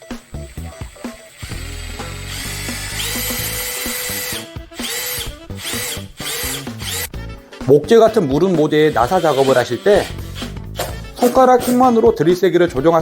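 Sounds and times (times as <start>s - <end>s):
impact driver motor whining: 0.0s - 7.1s, 8.9s - 11.1s.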